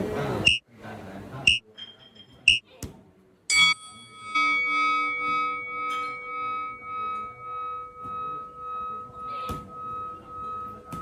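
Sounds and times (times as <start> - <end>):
metal bell ringing: 3.5 - 11.0.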